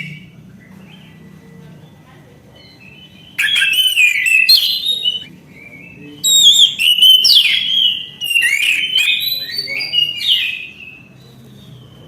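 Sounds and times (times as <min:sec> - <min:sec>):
thrush singing whistled phrases: 0:02.8 - 0:11.2.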